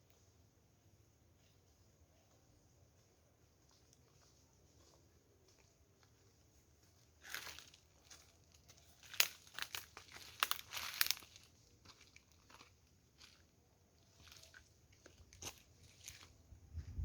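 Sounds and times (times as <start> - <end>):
crinkling handling noises: 7.2 - 16.4.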